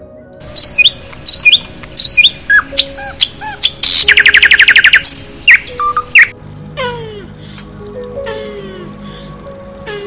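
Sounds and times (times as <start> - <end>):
bird chirps: 0.5 - 6.3
bird rattling trill: 0.6 - 6.3.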